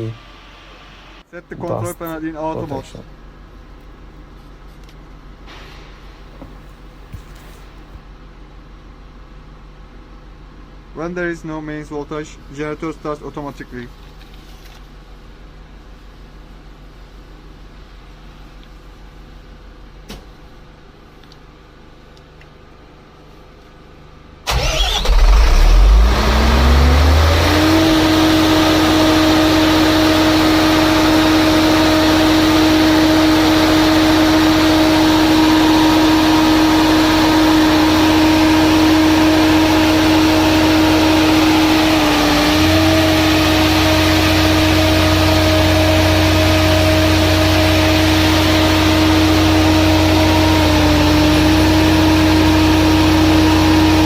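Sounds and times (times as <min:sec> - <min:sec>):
diesel generator engine starting: 0:24.5 - 0:54.0
diesel generator running: 0:24.5 - 0:54.0.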